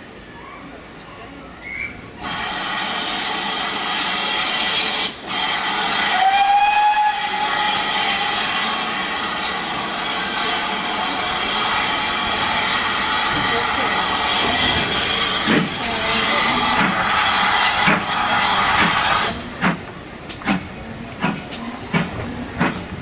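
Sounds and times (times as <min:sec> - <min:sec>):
loud hiss of steam: 0:01.4 - 0:22.9
steam locomotive whistle: 0:01.6 - 0:09.5.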